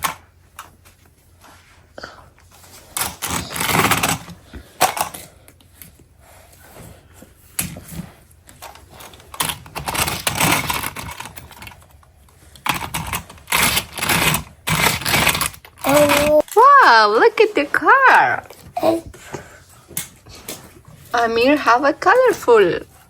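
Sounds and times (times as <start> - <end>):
plastic toy track pieces clattering: 3.0 - 4.2, 8.6 - 11.8, 12.7 - 16.6.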